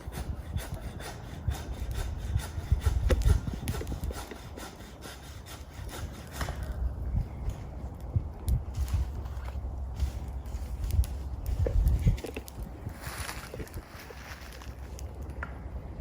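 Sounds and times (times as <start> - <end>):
hand saw cutting wood: 0.0 - 6.8.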